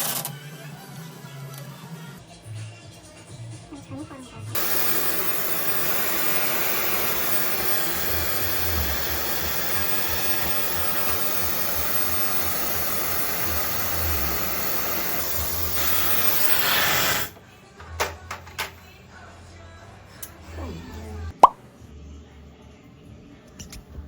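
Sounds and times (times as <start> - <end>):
electric blower rushing air: 4.6 - 17.4.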